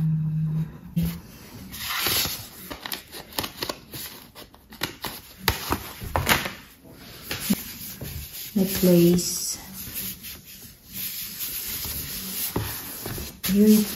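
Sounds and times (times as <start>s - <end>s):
paper packaging rustling: 1.7s - 9.4s.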